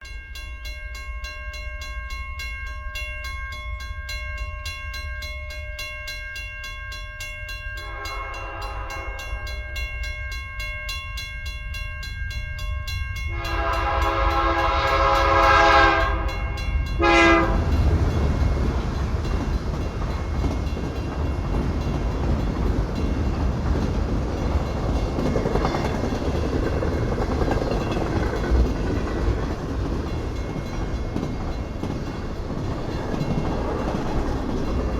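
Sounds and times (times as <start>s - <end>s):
railroad crossing bell ringing: 0.0s - 34.9s
locomotive horn blasts: 7.9s - 9.4s, 13.3s - 17.8s
train wheels rumbling: 11.7s - 34.9s.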